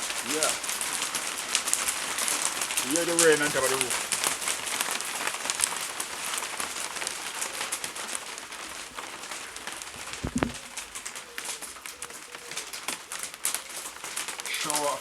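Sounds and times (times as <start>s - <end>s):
rain pattering on a roof: 0.0s - 15.0s
low thump: 10.2s - 10.6s.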